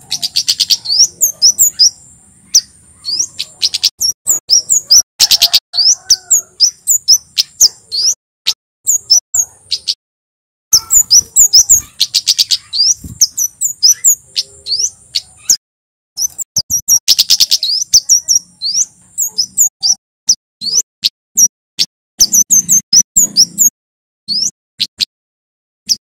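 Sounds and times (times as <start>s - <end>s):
bird singing high chips and trills: 0.0s - 8.2s, 8.9s - 10.0s, 10.7s - 15.6s, 16.2s - 25.1s.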